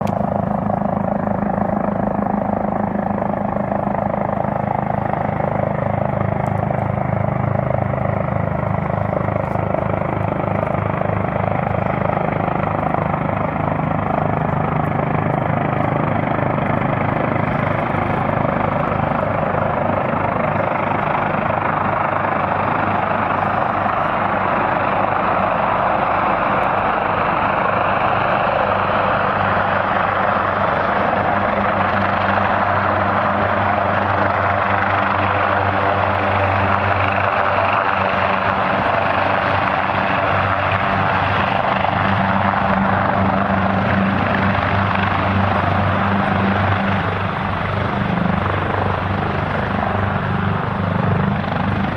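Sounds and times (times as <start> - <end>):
helicopter rotor and turbine noise: 0.0 - 51.9.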